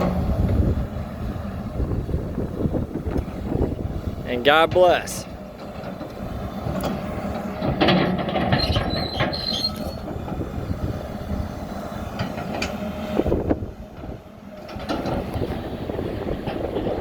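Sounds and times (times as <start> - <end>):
diesel engines running: 0.0 - 17.0
metal clanks and knocks: 4.6 - 10.4, 14.6 - 15.6
high metal squeal: 7.9 - 10.1.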